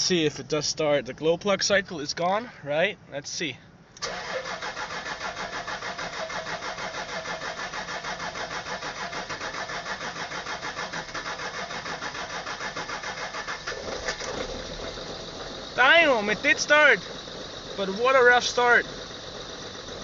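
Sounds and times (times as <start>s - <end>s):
diesel engine catching: 4.0s - 20.0s
engine starter cranking: 4.0s - 20.0s.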